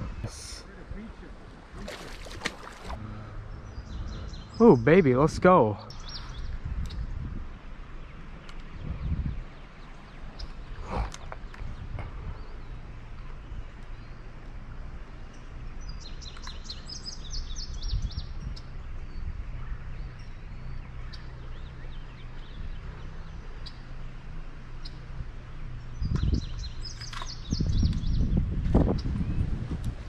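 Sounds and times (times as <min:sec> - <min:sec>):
low outdoor rumble: 0:00.0 - 0:30.0
bird chirping: 0:01.7 - 0:07.3, 0:07.9 - 0:29.6.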